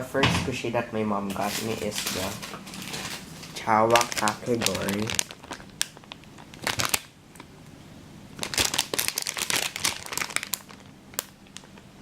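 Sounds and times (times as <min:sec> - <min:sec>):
packaging rustling and crinkling: 0:01.3 - 0:07.1, 0:08.4 - 0:11.8.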